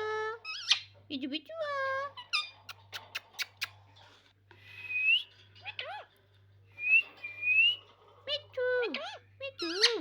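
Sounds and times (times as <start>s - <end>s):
parrot squawking: 0.4s - 1.0s, 8.8s - 10.0s.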